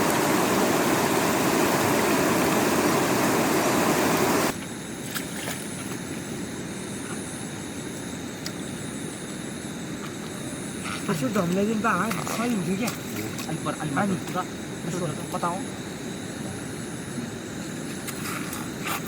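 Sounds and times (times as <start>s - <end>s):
stream water rushing: 0.0s - 4.6s.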